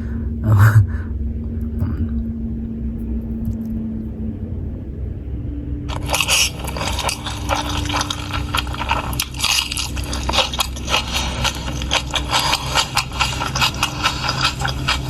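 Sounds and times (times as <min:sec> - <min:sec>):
low steady hum: 0:00.0 - 0:15.0
crunching and chewing food: 0:05.9 - 0:15.0.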